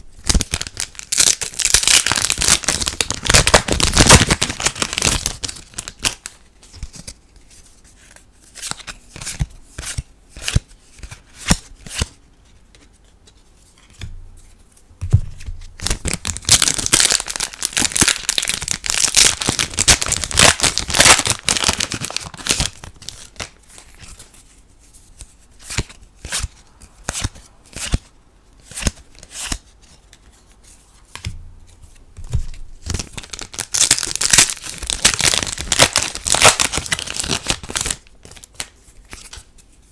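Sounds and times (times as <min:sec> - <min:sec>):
foil packs crinkling and tearing: 0:00.2 - 0:06.3, 0:15.8 - 0:23.6, 0:32.8 - 0:38.7.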